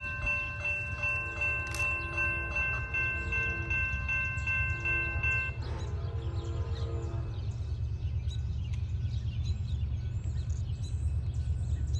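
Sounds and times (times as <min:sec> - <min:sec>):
railroad crossing bell ringing: 0:00.0 - 0:08.5.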